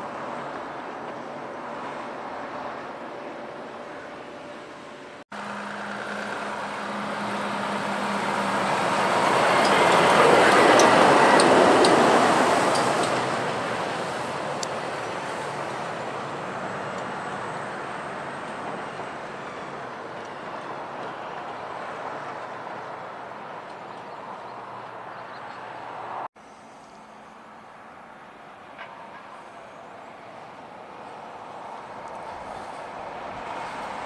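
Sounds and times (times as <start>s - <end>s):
heavy lorry driving past: 5.3s - 23.6s.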